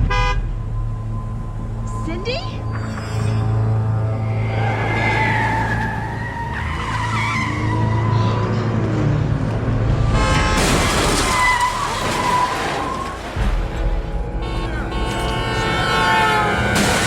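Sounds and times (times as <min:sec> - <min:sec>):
car tyres squealing: 0:02.7 - 0:09.1, 0:10.2 - 0:13.4
loud vehicle crash: 0:09.4 - 0:17.0.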